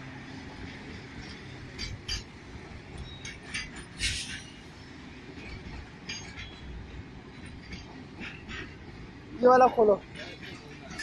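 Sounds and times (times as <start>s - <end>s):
train wheels rumbling on rails: 0.0s - 11.0s
metallic clanks and knocks: 1.2s - 4.6s, 5.5s - 9.0s.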